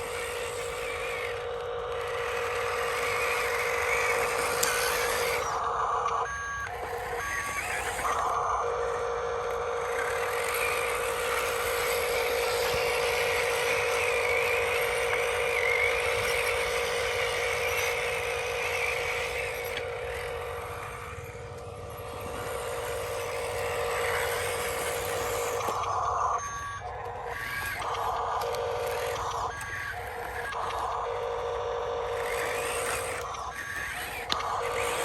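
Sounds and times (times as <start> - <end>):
toy electric motor whine: 0.0 - 35.0.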